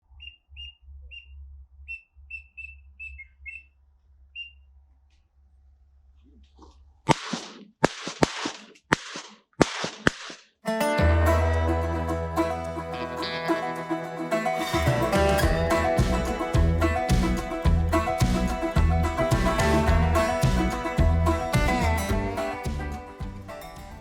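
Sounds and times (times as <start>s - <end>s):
high whistled peeps: 0.1s - 4.7s
shotgun shots: 7.1s - 10.5s.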